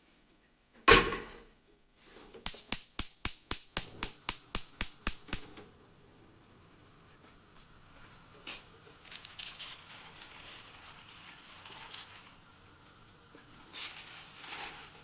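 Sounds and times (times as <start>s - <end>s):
sharp evenly spaced taps: 2.5s - 5.6s.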